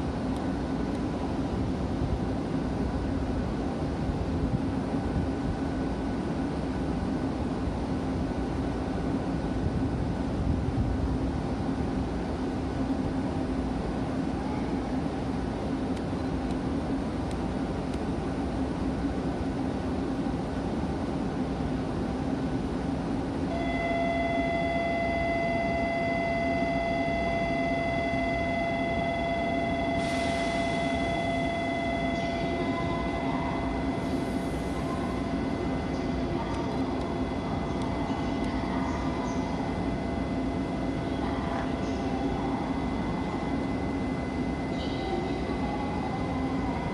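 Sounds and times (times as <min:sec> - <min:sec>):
train hum: 0:00.0 - 0:46.9
high-pitched ringing tone: 0:23.5 - 0:46.9.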